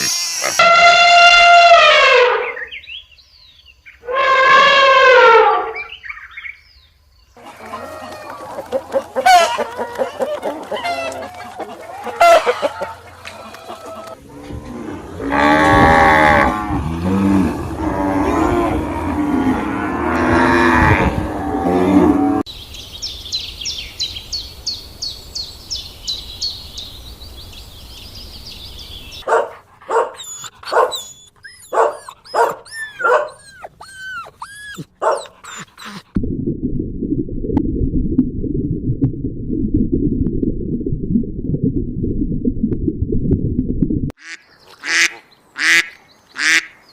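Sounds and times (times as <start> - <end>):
cattle mooing: 9.2 - 22.4
high-pitched chirping calls: 28.6 - 36.0.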